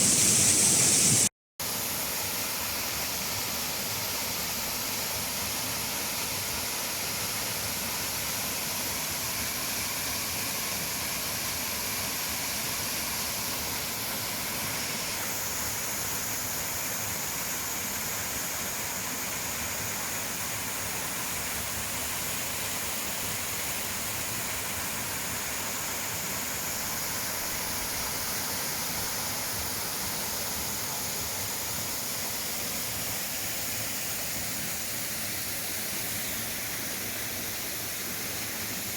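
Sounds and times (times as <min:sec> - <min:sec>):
waterfall rushing: 0:00.0 - 0:01.3.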